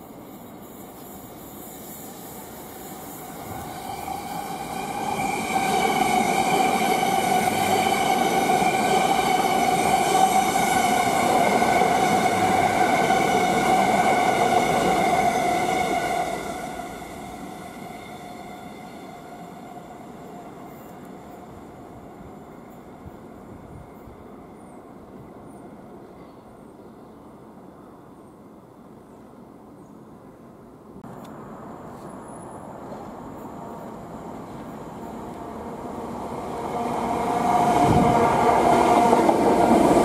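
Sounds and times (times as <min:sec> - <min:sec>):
train wheels rumbling: 0:00.0 - 0:22.5, 0:31.1 - 0:40.0
train high whine: 0:00.0 - 0:29.2, 0:31.0 - 0:40.0.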